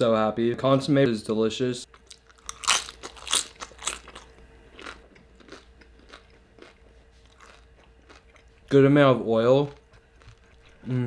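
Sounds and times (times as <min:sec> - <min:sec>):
crisp food crunching: 0:01.9 - 0:08.4.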